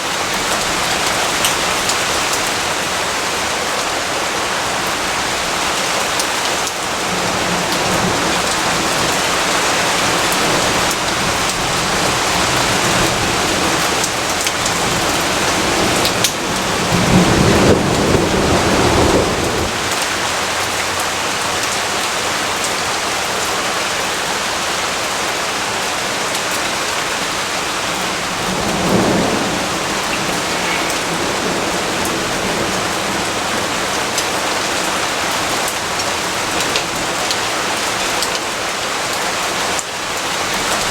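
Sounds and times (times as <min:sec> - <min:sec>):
heavy rain falling: 0:00.0 - 0:40.9
low rumble of thunder: 0:07.0 - 0:20.6, 0:27.9 - 0:34.7.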